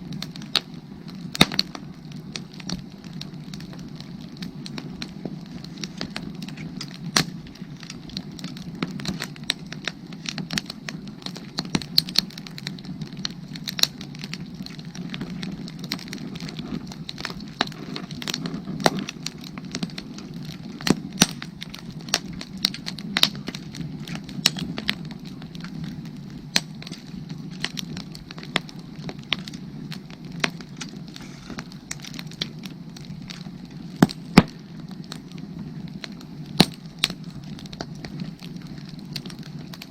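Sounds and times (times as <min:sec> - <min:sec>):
firewood crackling and popping: 0:00.0 - 0:39.9.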